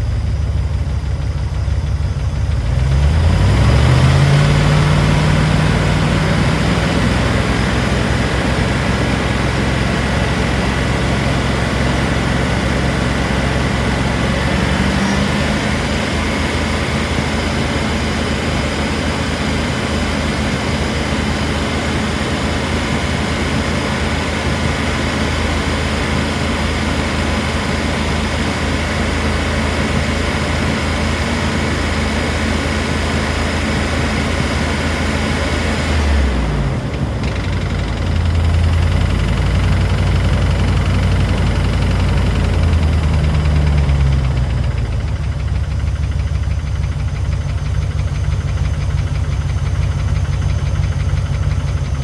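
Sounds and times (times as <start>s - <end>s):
car engine running: 0.0s - 52.0s.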